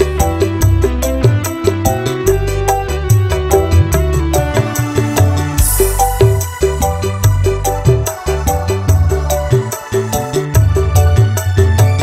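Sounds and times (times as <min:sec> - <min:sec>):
held melody notes: 0:00.0 - 0:08.8
bass: 0:00.0 - 0:12.0
driving drum beat: 0:00.0 - 0:12.0.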